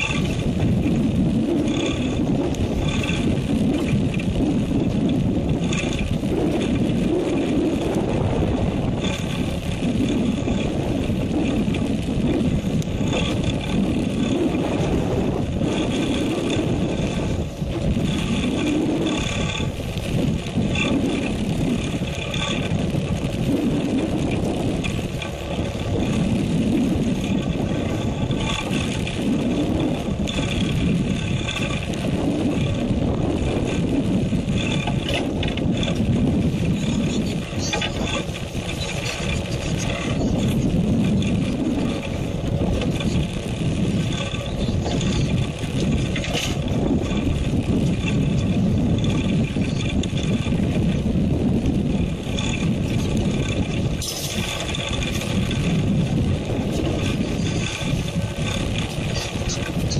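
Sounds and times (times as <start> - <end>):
boat engine running: 0.0 - 59.9
sea washing against hull: 0.0 - 59.9.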